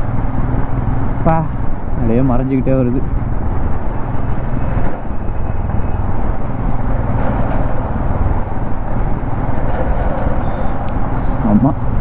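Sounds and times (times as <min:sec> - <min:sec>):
motorcycle engine cruising: 0:00.0 - 0:12.0
wind rushing over microphone: 0:00.0 - 0:12.0.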